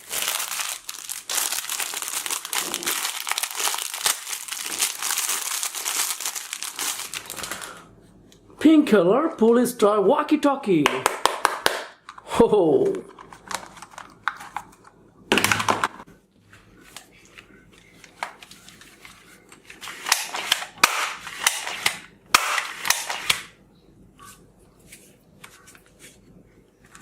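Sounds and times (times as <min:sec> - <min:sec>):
toy gun firing: 0:20.1 - 0:21.7, 0:22.3 - 0:23.5.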